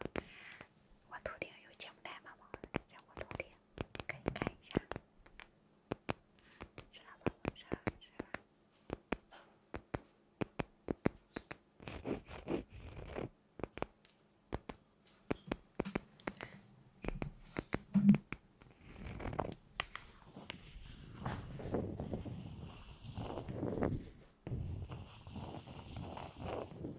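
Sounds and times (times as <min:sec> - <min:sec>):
sharp taps and clicks: 0:02.5 - 0:11.6, 0:13.6 - 0:20.1
scratching: 0:09.8 - 0:13.9, 0:18.6 - 0:26.9.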